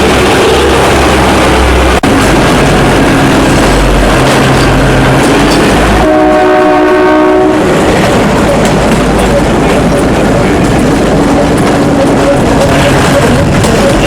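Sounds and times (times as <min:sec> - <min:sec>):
train rolling: 0:00.0 - 0:14.0
train horn: 0:06.0 - 0:07.8.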